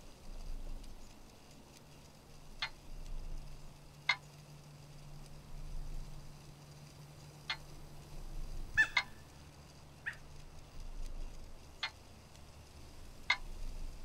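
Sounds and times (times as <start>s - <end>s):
faint low hum: 0.0s - 14.0s
short sharp bird calls: 8.8s - 9.4s, 10.0s - 10.3s.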